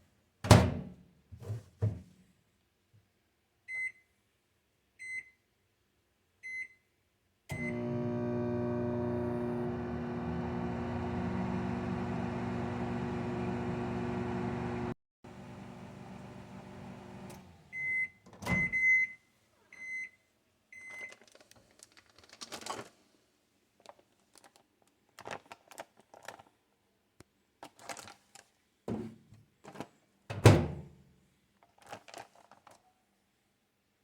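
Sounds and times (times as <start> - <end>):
microwave beeps: 7.5 - 14.9, 17.7 - 19.2
microwave oven humming: 7.5 - 17.8
handling rustles and taps: 31.6 - 32.8.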